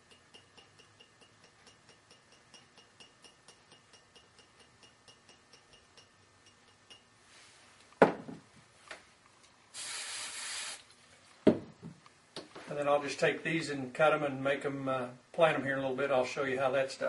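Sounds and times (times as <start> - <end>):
faint steady ticking: 0.0 - 7.4
aerosol spray hiss: 9.8 - 10.8.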